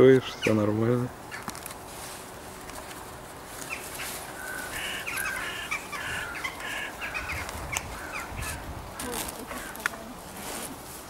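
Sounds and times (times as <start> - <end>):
bird harsh repeated calls: 3.6 - 9.9.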